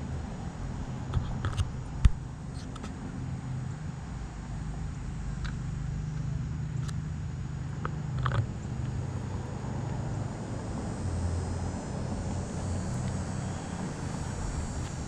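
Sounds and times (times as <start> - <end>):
bicycle rolling rumble: 0.0 - 15.0
bicycle clicks and rattles: 1.1 - 2.9, 7.8 - 8.5.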